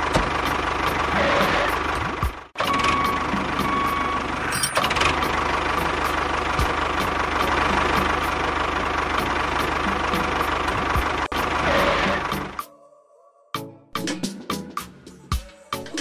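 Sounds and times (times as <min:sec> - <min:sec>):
model tractor engine drone: 0:00.0 - 0:12.6.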